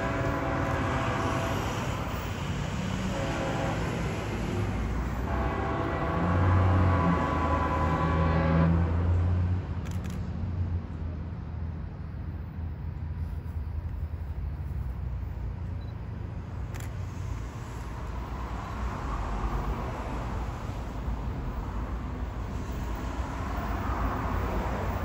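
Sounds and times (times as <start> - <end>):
train horn chord: 0.0 - 2.0, 3.0 - 4.6, 5.2 - 9.1
diesel locomotive engine rumble: 0.0 - 25.0
wheels rushing on rails: 0.0 - 25.0.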